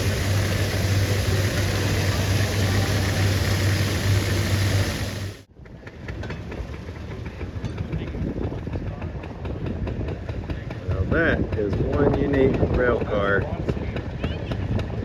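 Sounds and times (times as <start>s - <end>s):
engine idling: 0.0s - 5.5s.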